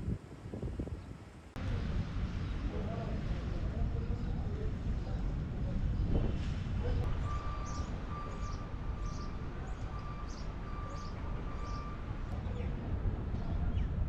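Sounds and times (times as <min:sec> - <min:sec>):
steady low rumble: 0:00.0 - 0:14.0
small bird chirping: 0:07.3 - 0:12.0.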